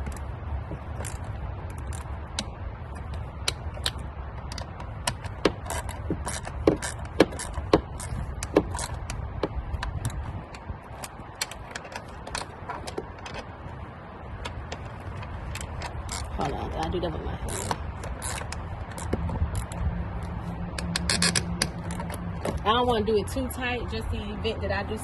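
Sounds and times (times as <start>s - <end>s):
low steady rumble: 0.0s - 25.0s
ratchet wrench clicking: 1.0s - 13.4s, 17.4s - 22.2s.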